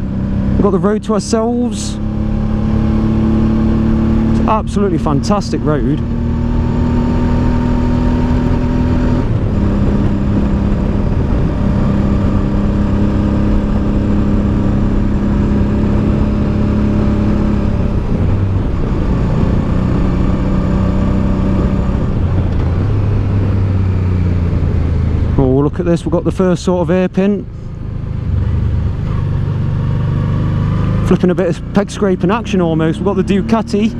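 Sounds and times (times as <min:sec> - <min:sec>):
motorcycle engine running: 0:00.0 - 0:33.9
wind rush: 0:06.1 - 0:17.0.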